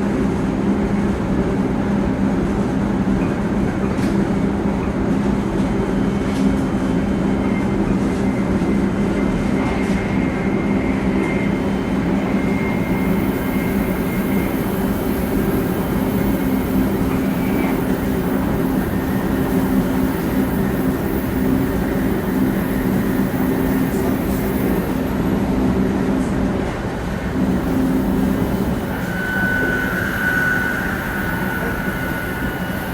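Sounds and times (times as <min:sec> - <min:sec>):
train wheels rumbling on rail: 0:00.0 - 0:32.9
faint high whine: 0:07.4 - 0:26.0, 0:27.2 - 0:32.9
steady low tones: 0:27.0 - 0:32.9.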